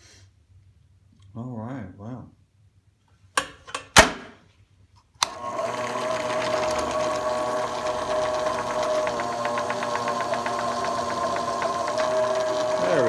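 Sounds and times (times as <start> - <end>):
drill press drilling into steel: 5.2 - 13.0.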